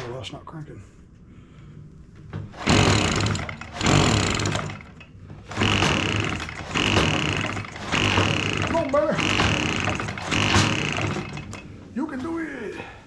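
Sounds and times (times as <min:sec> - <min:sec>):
engine recoil starter pulls: 0:02.6 - 0:11.7.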